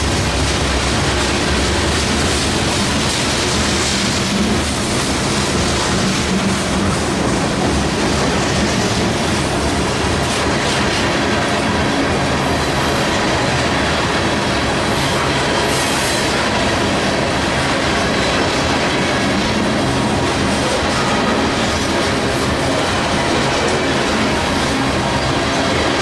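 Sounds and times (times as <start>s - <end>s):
freight train wheels clattering: 0.0s - 26.0s.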